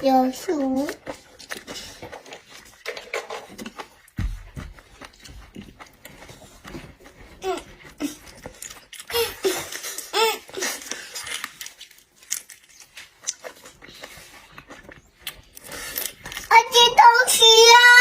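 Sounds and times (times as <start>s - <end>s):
seafood being chewed: 0.0s - 17.4s
small clicks and cracks: 10.7s - 16.5s.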